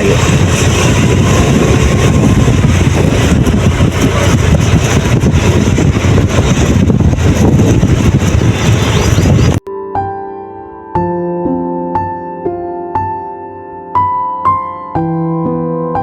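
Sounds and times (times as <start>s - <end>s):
wind rumbling on microphone: 0.0s - 9.6s.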